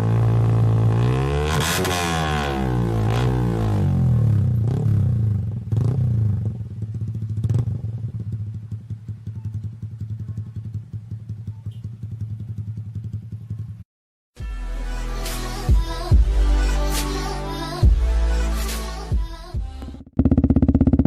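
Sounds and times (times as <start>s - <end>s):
motorcycle engine revving and idling: 0.0s - 13.8s, 19.0s - 21.0s.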